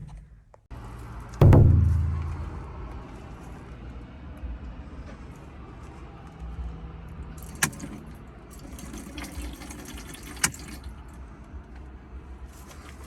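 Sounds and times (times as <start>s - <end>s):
steady low rumble: 1.4s - 3.2s.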